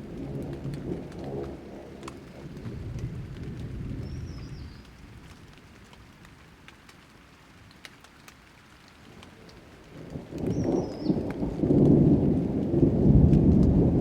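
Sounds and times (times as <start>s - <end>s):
thunder rolling: 0.0s - 4.8s, 10.0s - 14.0s
light rain falling: 0.0s - 14.0s
raindrops ticking: 0.0s - 14.0s.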